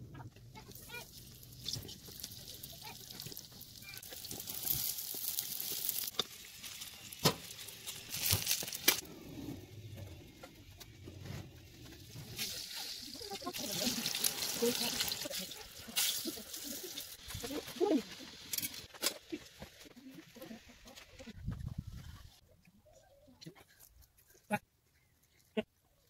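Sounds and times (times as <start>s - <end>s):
food sizzling in oil: 0.6s - 9.0s, 11.9s - 19.6s.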